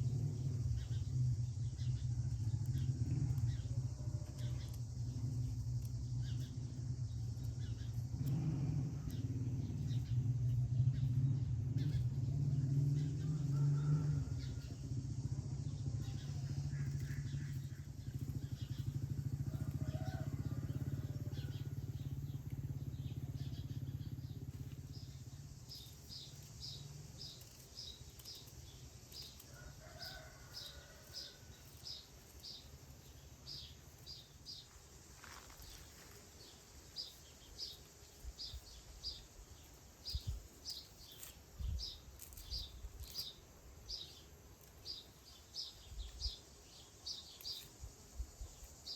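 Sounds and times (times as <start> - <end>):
low rumble: 0.0 - 27.5
small bird chirping: 0.0 - 48.9.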